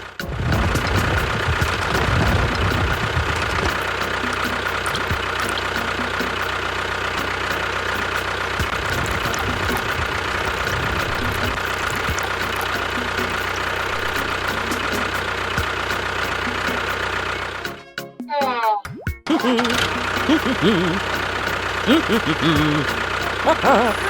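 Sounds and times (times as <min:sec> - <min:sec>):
low rumbling: 0:00.0 - 0:07.8, 0:08.6 - 0:15.5.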